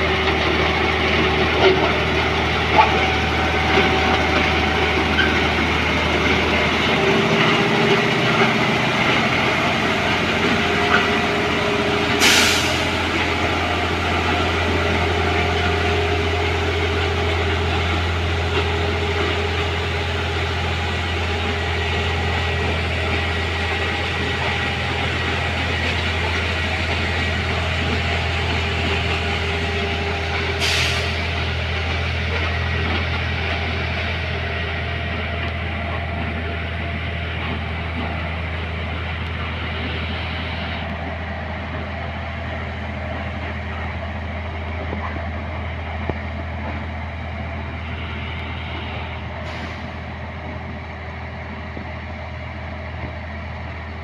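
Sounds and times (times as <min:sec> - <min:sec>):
diesel engine idling: 0:00.0 - 0:54.0
air release hiss: 0:12.2 - 0:13.1.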